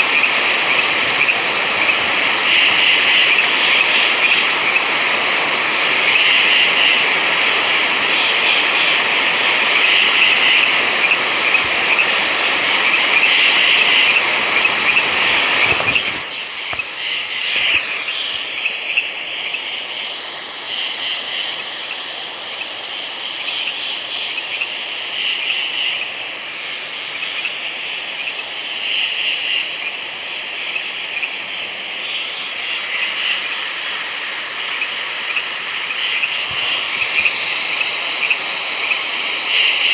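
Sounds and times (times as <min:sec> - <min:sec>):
frogs calling: 0:00.0 - 0:05.1, 0:05.8 - 0:39.9
steady hiss: 0:00.0 - 0:39.9.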